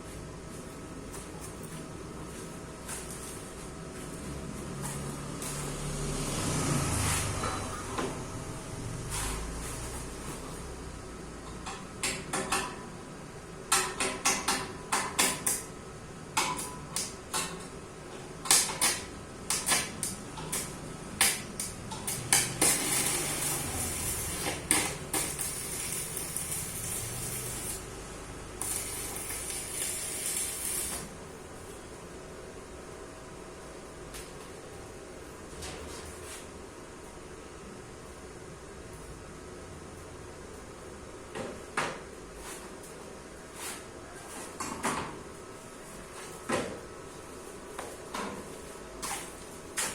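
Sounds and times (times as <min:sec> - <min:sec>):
hiss: 0:28.6 - 0:31.1.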